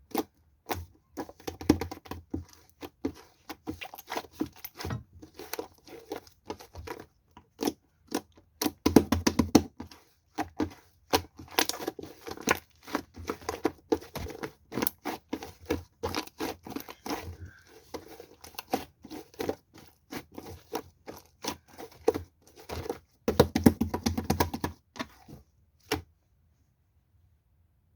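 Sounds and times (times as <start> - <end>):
crinkling and tearing by hand: 0.1 - 8.8, 9.7 - 23.4.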